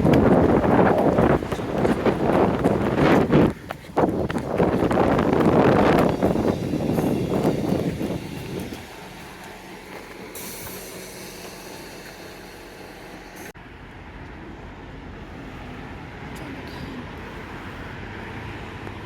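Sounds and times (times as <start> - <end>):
train rumbling slowly: 0.0 - 19.0
train hiss: 6.0 - 13.6.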